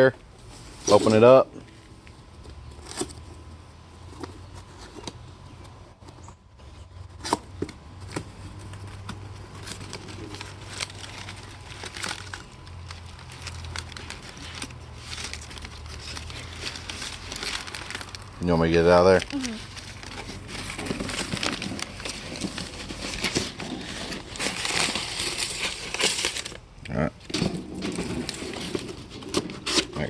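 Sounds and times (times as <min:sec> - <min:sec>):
steady low hum: 0:00.0 - 0:30.0
packaging crinkling and rustling: 0:07.2 - 0:30.0.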